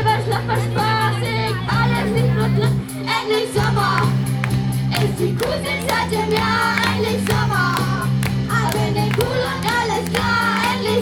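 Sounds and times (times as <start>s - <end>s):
bass notes: 0.0s - 11.0s
steady drum beat: 3.6s - 11.0s.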